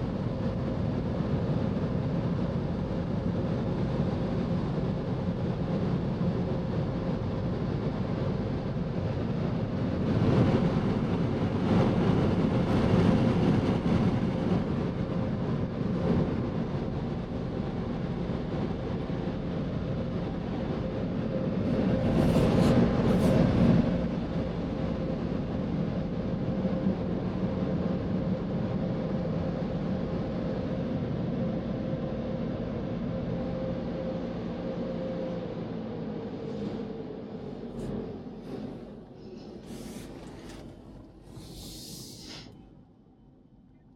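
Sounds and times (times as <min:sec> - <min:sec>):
car wash machinery hum: 0:13.6 - 0:42.5
spray rushing against car: 0:41.4 - 0:42.4.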